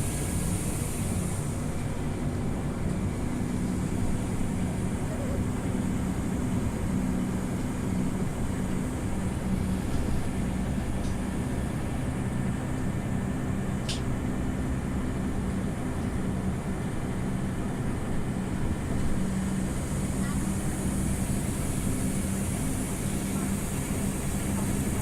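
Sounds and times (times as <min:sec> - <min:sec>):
bus engine humming: 0:00.0 - 0:25.0
road and cabin rumble: 0:00.0 - 0:25.0
sharp click: 0:13.8 - 0:14.1.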